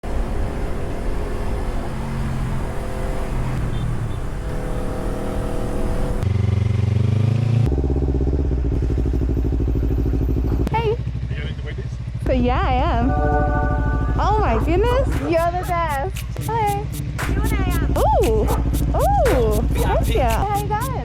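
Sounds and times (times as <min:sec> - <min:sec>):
motorcycle engine idling: 0:08.3 - 0:13.0, 0:13.8 - 0:21.0.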